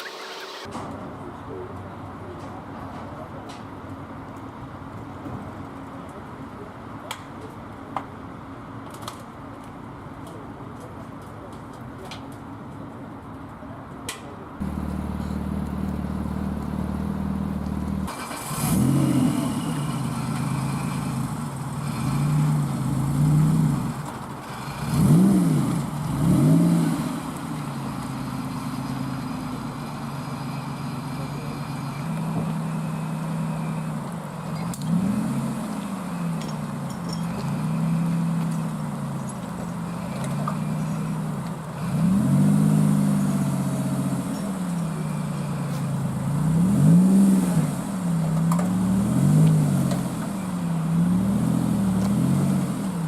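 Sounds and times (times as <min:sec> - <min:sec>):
engine revving blips: 0:00.0 - 0:00.7, 0:14.6 - 0:53.0
car engine idling: 0:14.4 - 0:53.0.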